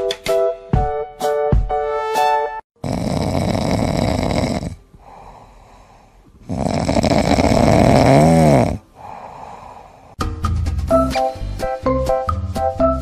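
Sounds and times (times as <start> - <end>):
cat snoring: 2.8 - 10.2
cat breathing: 2.9 - 7.8, 8.6 - 10.2.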